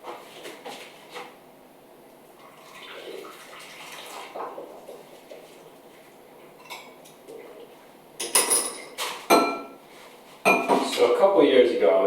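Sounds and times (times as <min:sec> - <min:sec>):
kitchenware clinking: 0:06.6 - 0:07.2, 0:08.2 - 0:09.8, 0:10.4 - 0:11.0.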